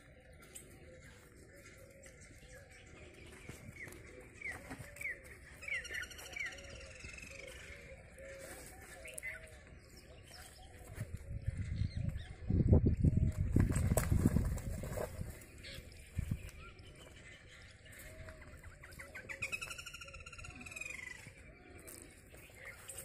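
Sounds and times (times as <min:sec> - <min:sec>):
birds chirping and calling: 0:00.0 - 0:23.0
repeated low bird notes: 0:00.0 - 0:23.0
heavy low thuds and scuffing: 0:13.2 - 0:15.4.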